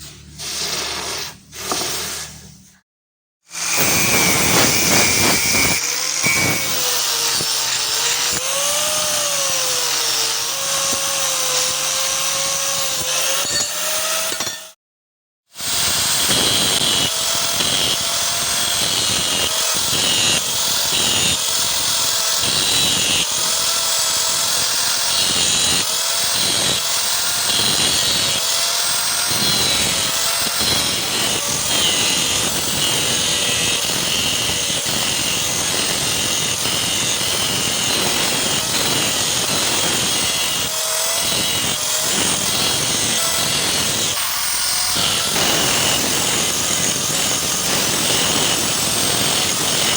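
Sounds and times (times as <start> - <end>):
electric grinder grinding steel: 0.0 - 2.7, 3.5 - 14.8, 15.6 - 49.9.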